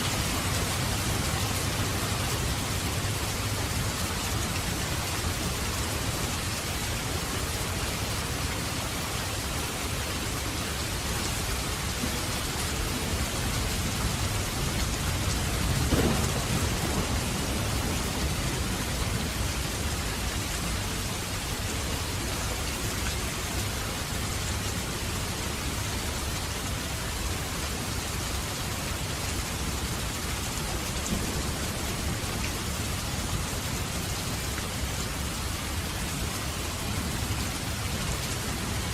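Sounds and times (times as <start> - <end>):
steady rain falling: 0.0 - 38.9
thunder crack and rumble: 12.0 - 20.9, 30.8 - 34.0.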